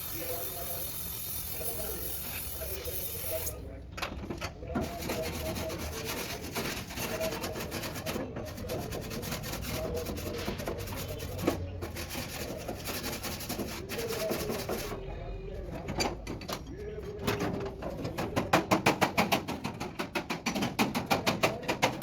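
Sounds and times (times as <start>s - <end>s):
rubbing and scraping strokes: 4.8s - 15.0s.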